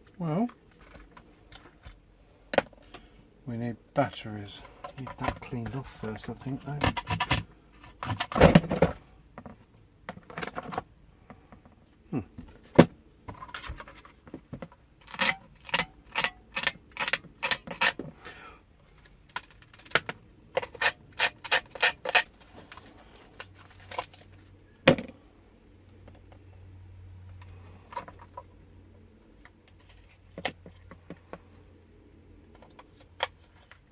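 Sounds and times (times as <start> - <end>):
plastic parts clicking and knocking: 4.8 - 10.8, 12.8 - 18.1, 19.0 - 22.8
plastic rubbing and scraping: 4.9 - 9.6, 19.0 - 24.5.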